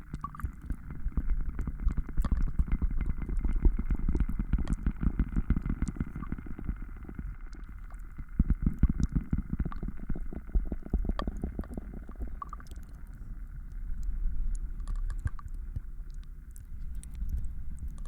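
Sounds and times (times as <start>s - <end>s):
faint clicks: 10.9s - 18.0s.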